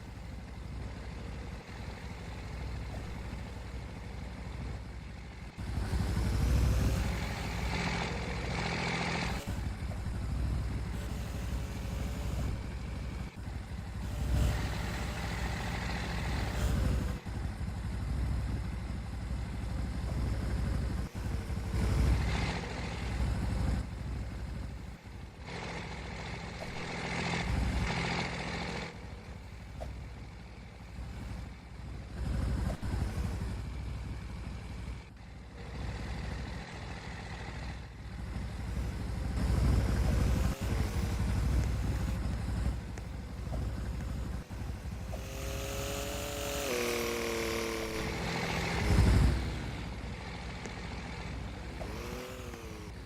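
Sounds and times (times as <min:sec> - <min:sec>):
vehicles passing on road: 0:00.0 - 0:53.0.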